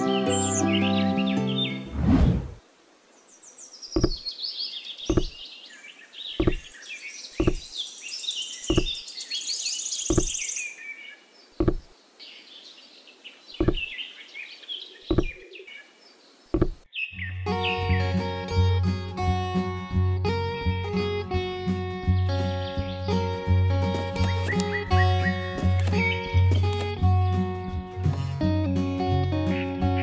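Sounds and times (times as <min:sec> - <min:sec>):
birds chirping: 0:00.0 - 0:02.0, 0:03.2 - 0:19.2, 0:20.3 - 0:27.0, 0:29.0 - 0:30.0
light sharp knocks: 0:04.0 - 0:04.2, 0:05.1 - 0:05.4, 0:06.4 - 0:06.7, 0:07.4 - 0:07.7, 0:08.7 - 0:09.0, 0:10.1 - 0:10.3, 0:11.6 - 0:11.9, 0:13.6 - 0:13.9, 0:15.1 - 0:15.4, 0:16.6 - 0:16.8
low thud: 0:10.1 - 0:10.3, 0:13.6 - 0:13.8.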